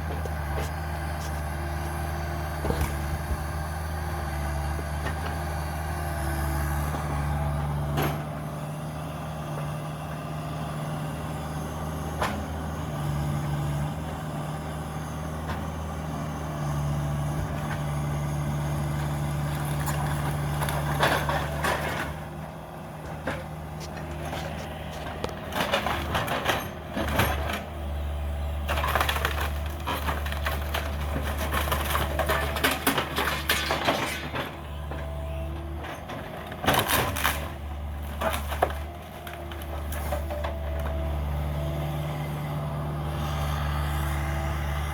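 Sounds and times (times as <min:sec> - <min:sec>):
diesel engine running: 0:00.0 - 0:44.9
wood cracking and splintering: 0:19.0 - 0:22.1, 0:28.6 - 0:34.6, 0:36.2 - 0:41.0.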